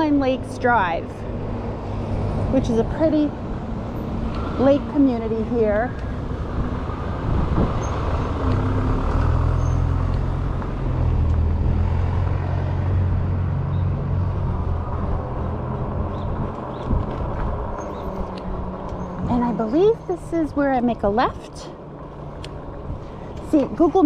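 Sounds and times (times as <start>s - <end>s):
wind and road noise: 0.0s - 24.0s.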